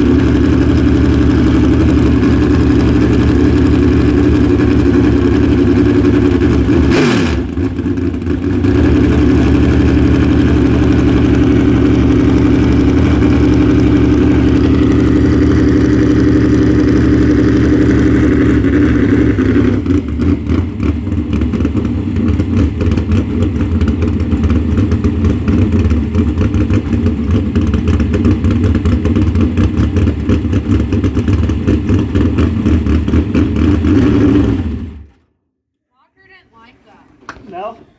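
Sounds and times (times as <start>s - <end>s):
car engine running: 0.0s - 35.2s.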